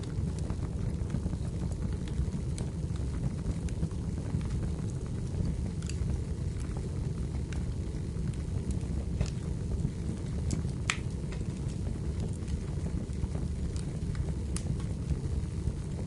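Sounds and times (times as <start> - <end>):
fire crackles and pops: 0.0 - 16.0
fire low rumble: 0.0 - 16.0.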